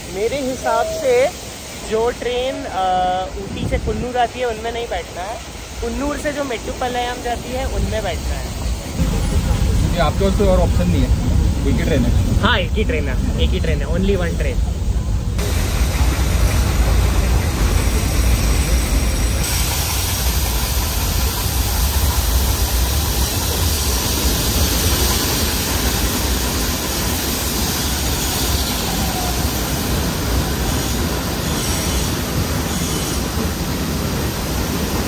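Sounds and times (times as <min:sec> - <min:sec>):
train wheels rumbling on track: 0:00.0 - 0:35.0.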